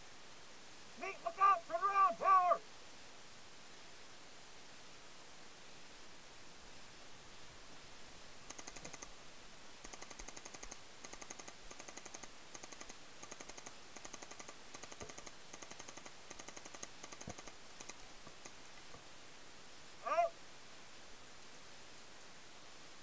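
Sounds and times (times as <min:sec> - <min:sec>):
paintball markers firing bursts: 0:09.9 - 0:18.5.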